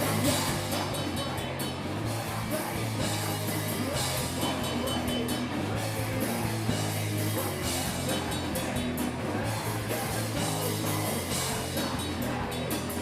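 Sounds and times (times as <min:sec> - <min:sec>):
bass guitar: 0:00.0 - 0:13.0
distorted electric guitar: 0:00.0 - 0:13.0
drum kit: 0:00.0 - 0:13.0.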